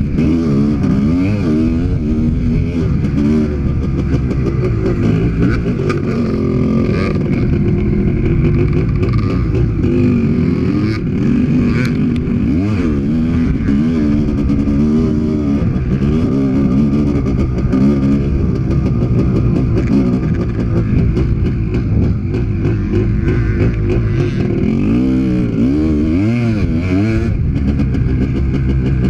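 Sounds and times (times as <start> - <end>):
two-stroke motorcycle engine revving: 0.0 - 29.0.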